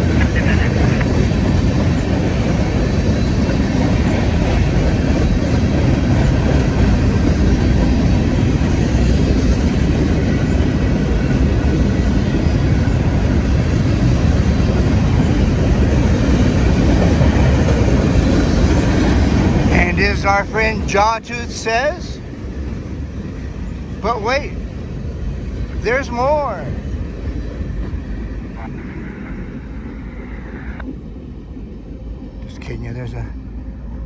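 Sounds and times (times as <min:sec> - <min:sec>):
freight train rumbling past: 0:00.0 - 0:34.0.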